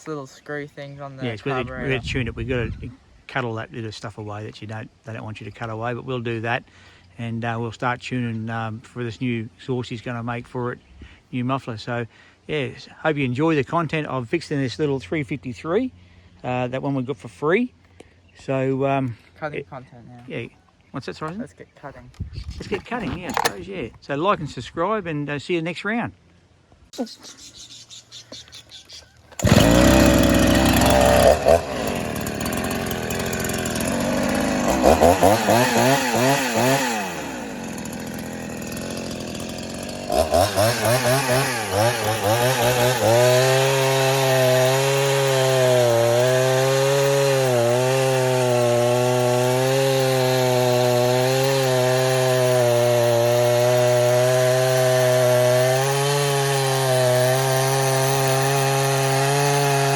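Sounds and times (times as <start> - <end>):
chainsaw revving and cutting: 29.4 - 59.9.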